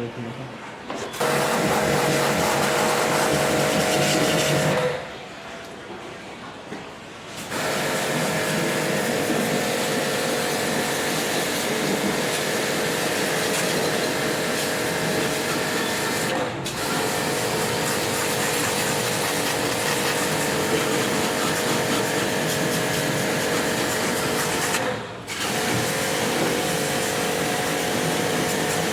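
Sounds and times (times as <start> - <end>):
electric machine humming and hissing: 7.5 - 28.9.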